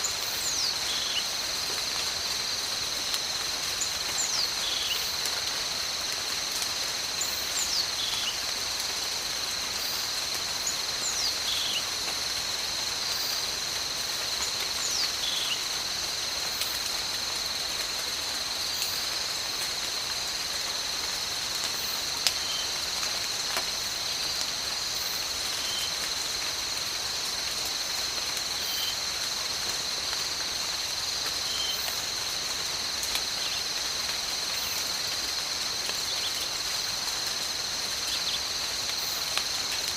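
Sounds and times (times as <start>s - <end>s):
high insect drone: 0.0s - 39.9s
rain falling: 0.0s - 39.9s.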